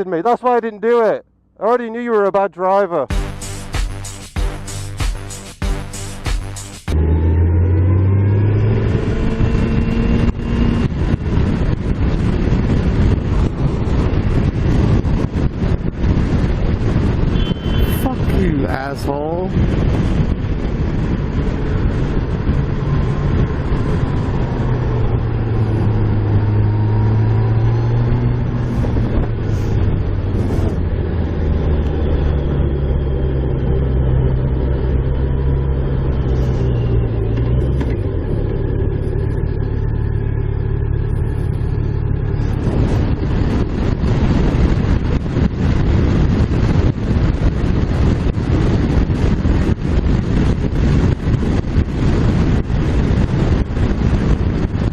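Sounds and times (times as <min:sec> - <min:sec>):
wind noise on microphone: 0:03.2 - 0:54.9
motorcycle engine running: 0:19.5 - 0:54.9.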